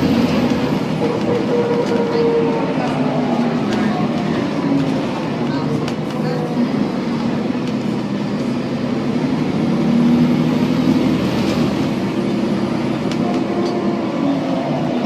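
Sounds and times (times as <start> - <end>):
bus engine and drivetrain noise: 0.0 - 15.0.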